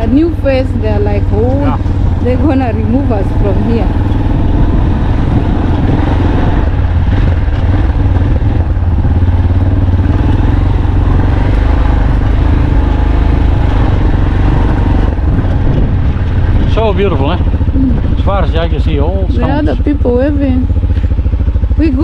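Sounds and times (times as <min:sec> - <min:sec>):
loud low engine drone: 0:00.0 - 0:22.0
road noise: 0:00.0 - 0:22.0.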